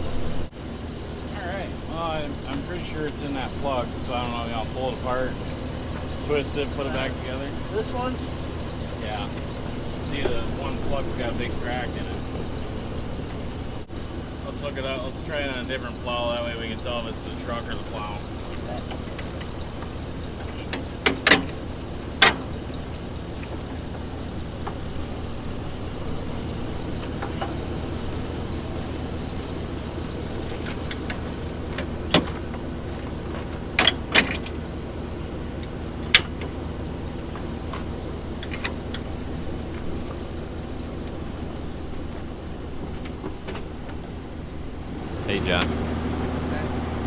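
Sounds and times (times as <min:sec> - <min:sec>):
truck engine idling: 0:00.0 - 0:47.0
sharp metal clicks and knocks: 0:18.5 - 0:25.2, 0:30.4 - 0:34.7, 0:37.3 - 0:40.3.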